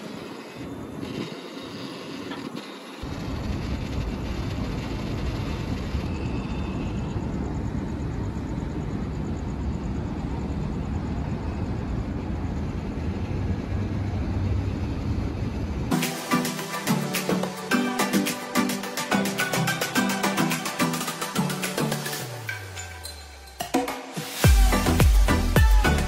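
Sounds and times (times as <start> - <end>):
vehicle rumbling in motion: 0.0 - 15.9
music: 15.9 - 26.0.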